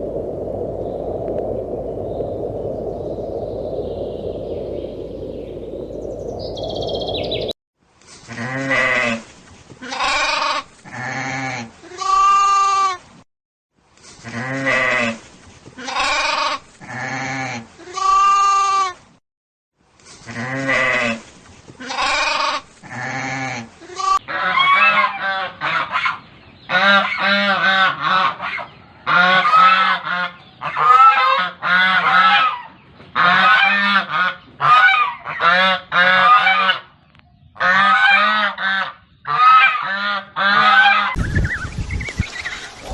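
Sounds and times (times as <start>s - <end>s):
steady noise: 0.0s - 7.5s.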